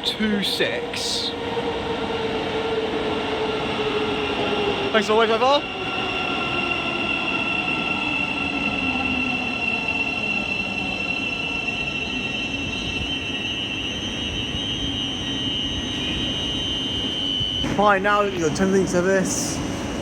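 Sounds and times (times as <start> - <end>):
electric train arriving: 0.0 - 20.0
high-pitched squeal: 3.6 - 18.8.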